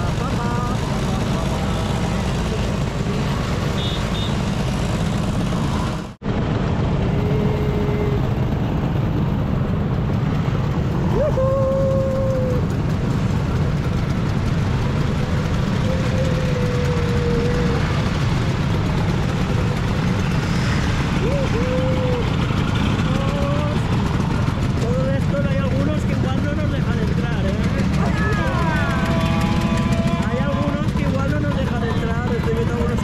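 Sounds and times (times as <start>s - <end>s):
scooter engine running: 0.0s - 33.0s
short steady horn tones: 3.7s - 4.5s.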